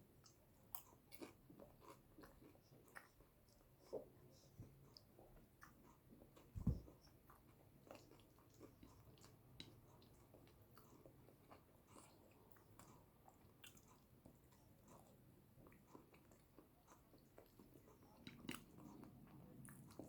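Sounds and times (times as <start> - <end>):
low thump: 6.6 - 6.9.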